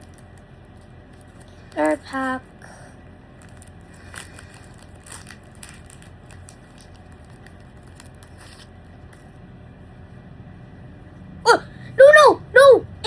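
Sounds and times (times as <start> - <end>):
foil wrapper crinkling: 3.4 - 8.7.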